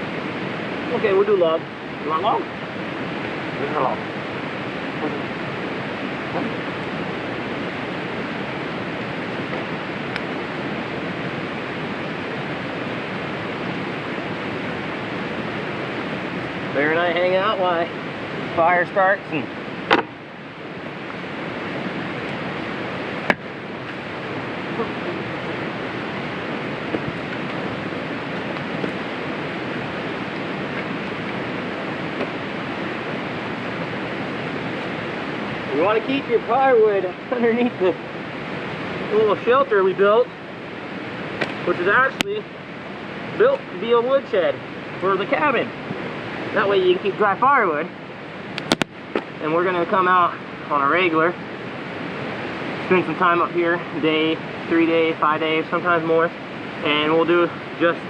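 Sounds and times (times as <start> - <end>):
wind and rain rushing: 0.0 - 58.0
sharp click: 48.6 - 49.3.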